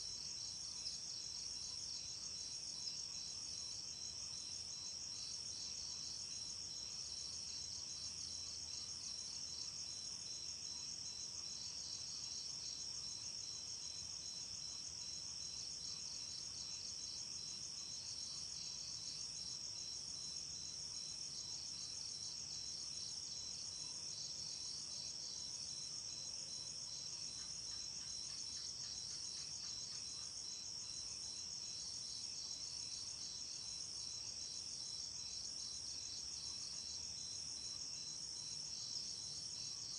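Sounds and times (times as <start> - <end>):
lower insect trill: 0.0 - 39.9
crickets chirring: 9.5 - 39.9.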